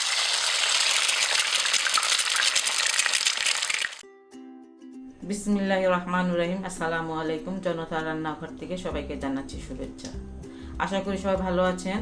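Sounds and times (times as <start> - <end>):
food deep-frying in oil: 0.0 - 4.0.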